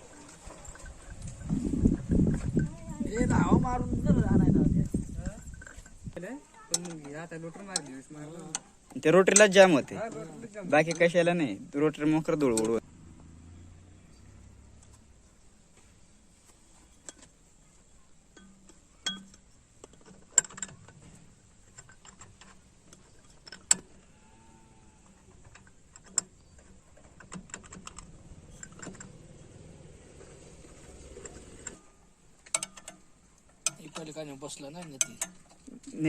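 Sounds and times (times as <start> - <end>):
metal tools clinking and knocking: 0.0 - 3.4, 5.0 - 11.5, 18.3 - 24.0, 25.1 - 31.8, 32.4 - 36.0
small clicks and rattles: 5.0 - 10.2, 18.4 - 24.1, 25.0 - 31.8, 32.4 - 36.0.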